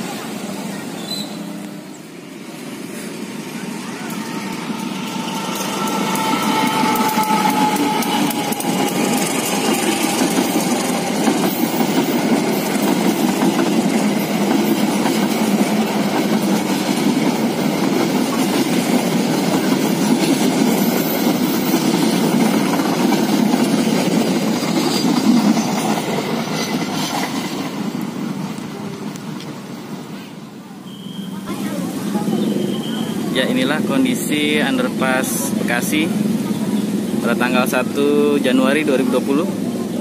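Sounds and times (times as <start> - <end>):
train wheels rumbling and clattering: 0.0 - 30.1.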